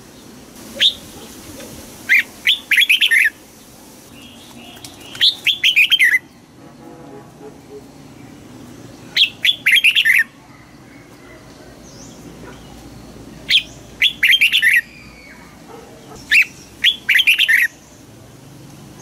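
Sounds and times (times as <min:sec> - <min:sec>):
bulbul singing whistled notes: 0:00.8 - 0:01.1, 0:02.1 - 0:03.4, 0:04.1 - 0:06.4, 0:09.1 - 0:11.0, 0:13.5 - 0:15.5, 0:16.2 - 0:17.9.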